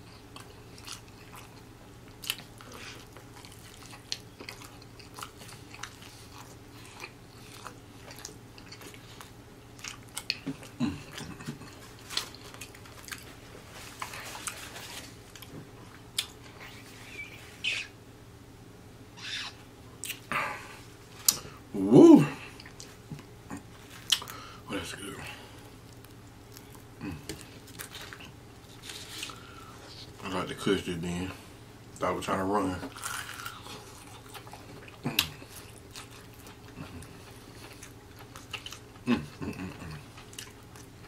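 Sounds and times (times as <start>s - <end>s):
chewing crispy fried chicken: 0.0s - 17.9s, 22.3s - 41.0s
wet mouth clicks and smacks: 24.1s - 24.4s.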